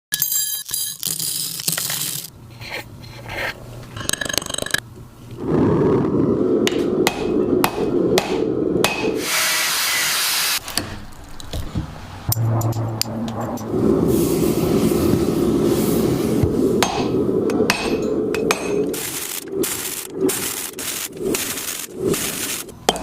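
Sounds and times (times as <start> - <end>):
scraping and rubbing: 1.1 - 4.8, 18.6 - 22.8
hammer strikes: 6.7 - 9.2, 16.8 - 18.9.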